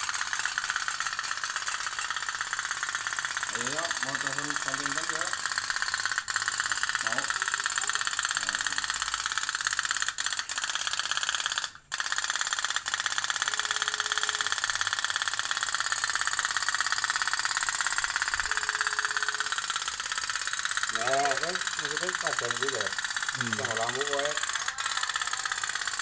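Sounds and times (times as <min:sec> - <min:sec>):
toy steam boat putt-putt rattle: 0:00.0 - 0:26.0.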